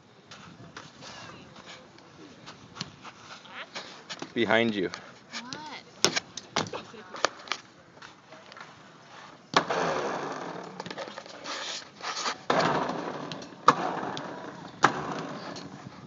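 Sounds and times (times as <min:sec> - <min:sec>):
rumbling scraping on slide: 0:09.1 - 0:16.0.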